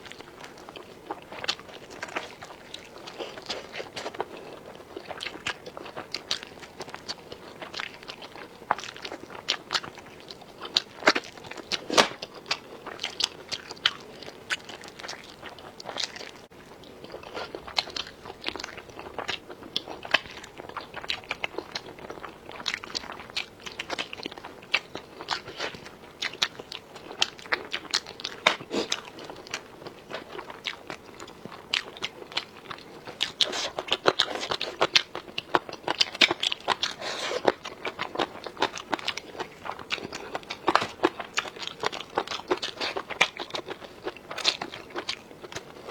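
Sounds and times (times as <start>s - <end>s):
crunchy chewing: 0.0s - 45.9s.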